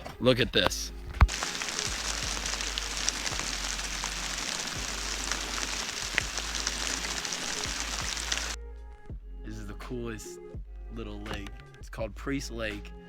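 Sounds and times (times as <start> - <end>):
rain falling on a lake: 1.2 - 8.6.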